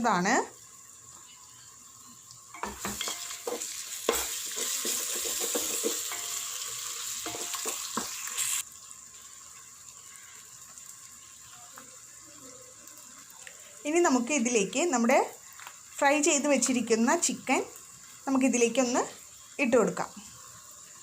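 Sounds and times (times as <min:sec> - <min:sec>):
masala sizzling in a pot: 0:00.0 - 0:21.0
spoon knocking against pot: 0:02.6 - 0:06.4, 0:07.2 - 0:08.1.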